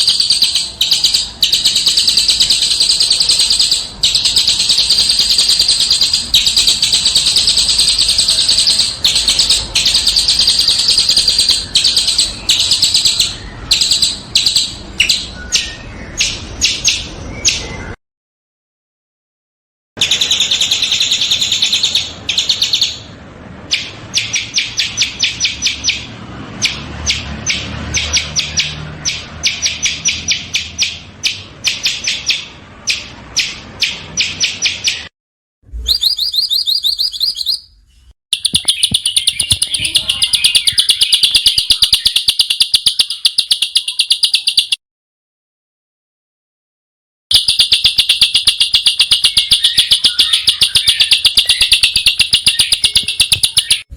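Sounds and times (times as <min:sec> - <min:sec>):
songbirds singing harsh notes: 0:00.0 - 0:18.0, 0:20.0 - 0:35.1, 0:35.8 - 0:44.8, 0:47.3 - 0:53.9.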